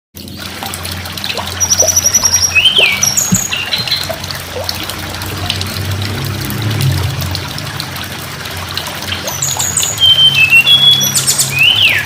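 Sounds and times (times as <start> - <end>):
steady low hum: 0.2 - 9.2
trickling water: 0.2 - 12.0
bird singing high trills: 1.5 - 4.1, 9.3 - 12.0.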